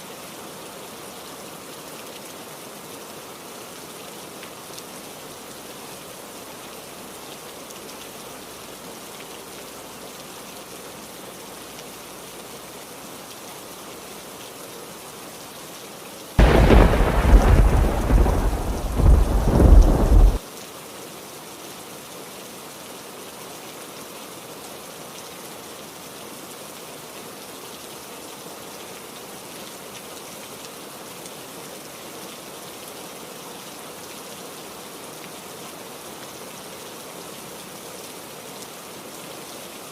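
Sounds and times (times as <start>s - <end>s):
heavy rain: 0.0s - 39.9s
thunderclap: 16.4s - 20.4s.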